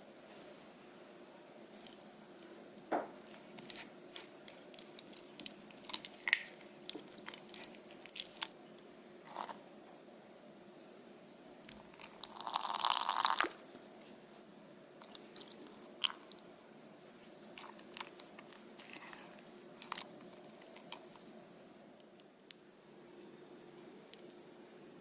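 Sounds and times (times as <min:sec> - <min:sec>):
person chewing: 0:03.2 - 0:08.6, 0:15.0 - 0:16.5, 0:17.4 - 0:21.2.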